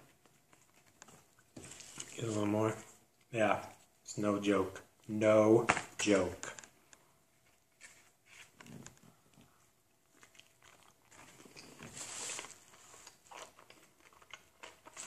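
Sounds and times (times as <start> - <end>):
person chewing food: 8.6 - 15.0.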